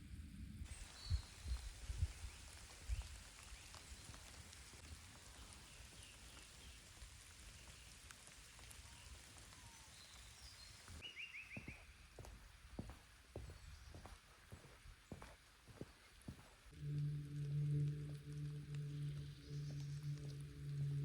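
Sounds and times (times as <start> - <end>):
faint outdoor hiss: 0.0 - 21.0
faint bird chirps: 8.8 - 16.6.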